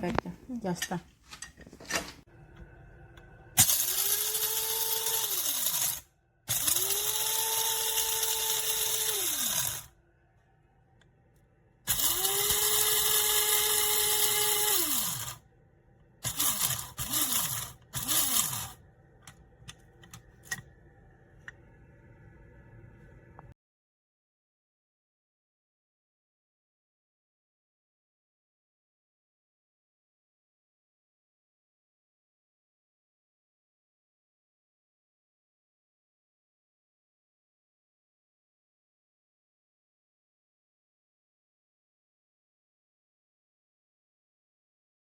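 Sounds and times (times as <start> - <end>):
coffee grinder whining: 3.6 - 9.9, 11.9 - 15.4, 16.2 - 18.8.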